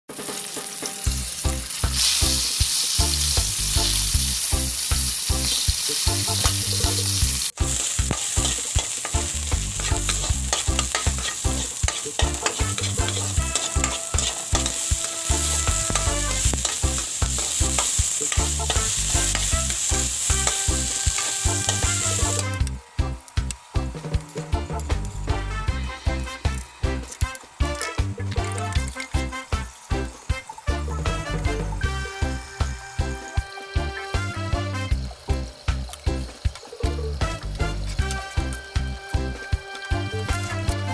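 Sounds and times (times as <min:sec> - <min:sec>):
stirring in a pan: 0:00.1 - 0:22.6
food sizzling in hot oil: 0:00.1 - 0:40.9.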